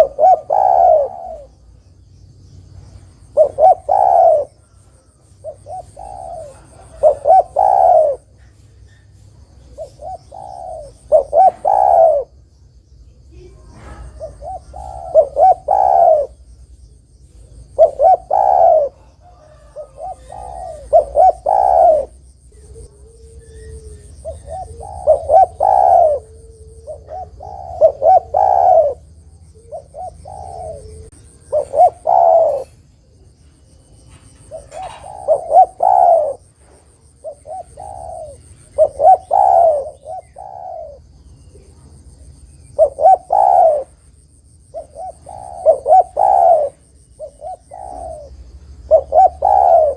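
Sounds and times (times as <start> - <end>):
dove cooing: 0.0 - 1.8, 3.0 - 9.0, 9.6 - 12.4, 13.3 - 16.6, 17.2 - 44.0, 44.7 - 49.9.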